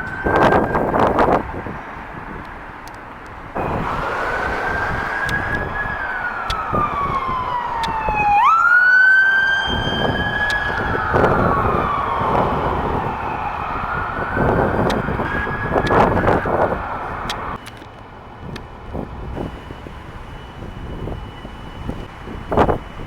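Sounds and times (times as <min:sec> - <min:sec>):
emergency vehicle siren wailing: 0:00.0 - 0:17.8
rumble of passing vehicles: 0:00.0 - 0:23.0.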